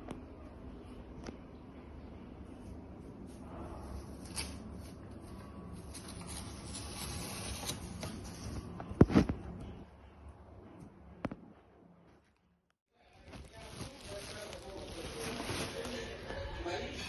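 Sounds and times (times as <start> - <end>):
rustling of things being handled: 13.1 - 16.5.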